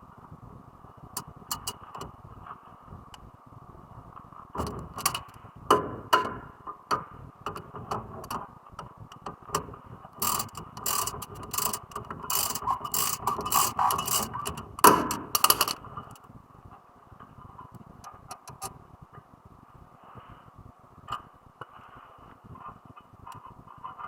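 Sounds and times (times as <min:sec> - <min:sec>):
ratchet wrench clicking: 0:01.5 - 0:02.0, 0:04.6 - 0:05.3, 0:10.2 - 0:15.8.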